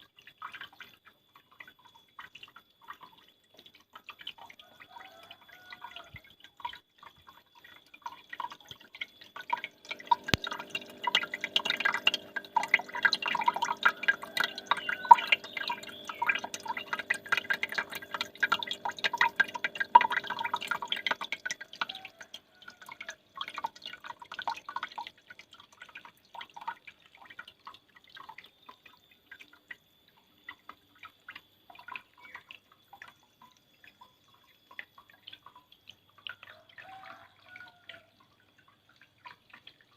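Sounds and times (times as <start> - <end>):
water dripping and splashing: 0.0 - 39.9.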